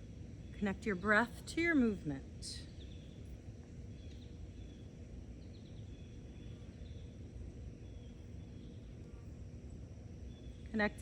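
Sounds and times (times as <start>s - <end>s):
faint bird chirps: 2.6s - 11.0s.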